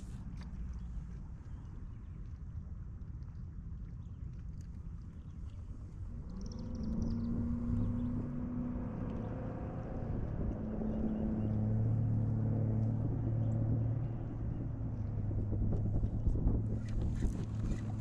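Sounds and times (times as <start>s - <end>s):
boat motor droning: 5.8s - 18.0s.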